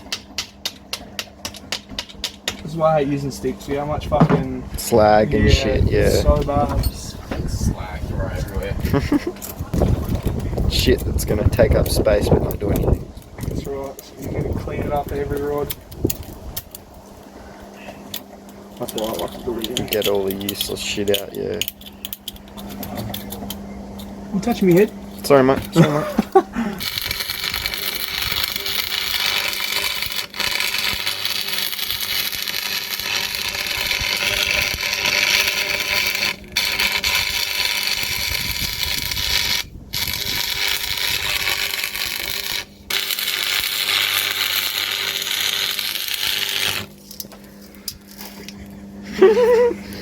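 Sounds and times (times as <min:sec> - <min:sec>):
welding arc crackling and hissing: 0:26.7 - 0:47.0.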